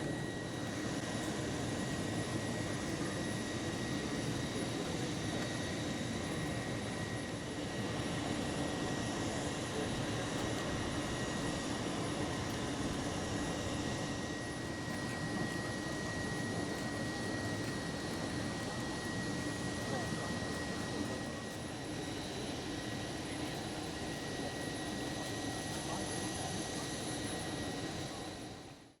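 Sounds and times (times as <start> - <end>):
constant high whine: 0.0 - 28.9.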